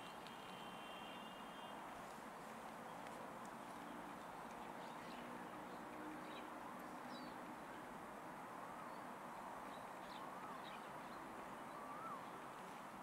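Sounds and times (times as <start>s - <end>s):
steady background hiss: 0.0s - 13.0s
bird whistled call: 11.7s - 12.3s.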